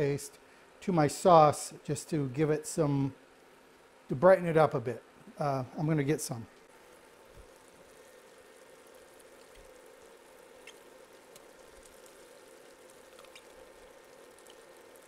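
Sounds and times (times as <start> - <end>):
steady hum: 0.0 - 15.0
vegetables sizzling in fat: 6.6 - 15.0
small oil pops: 10.6 - 12.0, 13.1 - 13.6.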